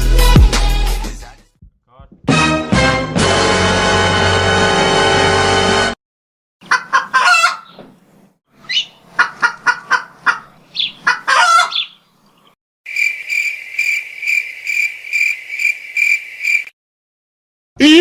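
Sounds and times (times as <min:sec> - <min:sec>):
chicken clucking and squawking: 0:06.6 - 0:07.8, 0:08.6 - 0:12.0.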